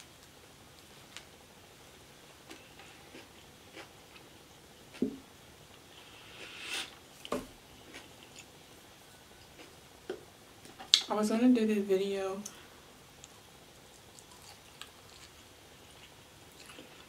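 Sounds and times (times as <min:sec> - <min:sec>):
chewing with wet mouth clicks: 0:13.2 - 0:17.0.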